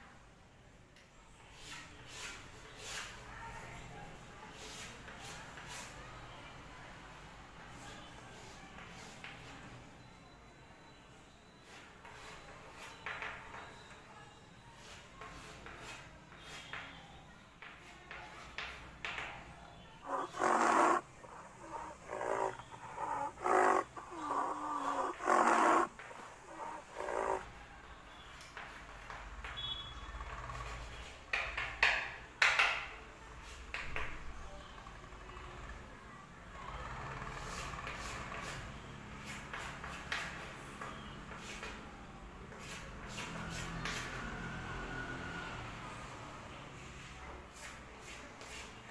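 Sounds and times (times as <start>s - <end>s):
chalk scratching on blackboard: 1.5s - 3.3s, 4.5s - 6.0s, 14.8s - 16.8s, 20.1s - 27.4s
animal calling: 20.0s - 27.5s.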